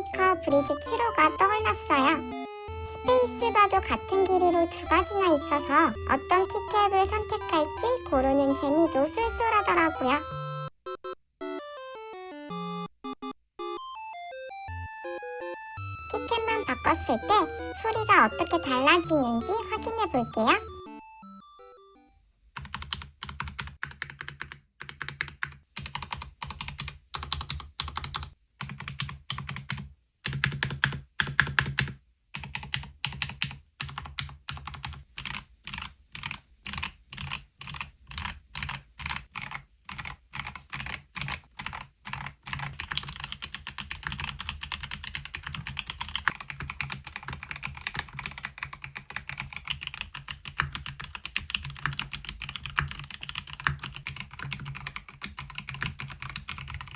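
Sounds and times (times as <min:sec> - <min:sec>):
mechanical keyboard typing: 0:22.6 - 0:56.9.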